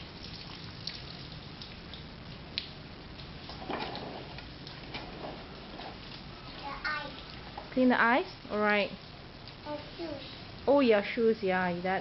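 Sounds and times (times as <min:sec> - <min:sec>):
water patter and drip: 0:00.0 - 0:06.3
low steady hum: 0:00.0 - 0:12.0.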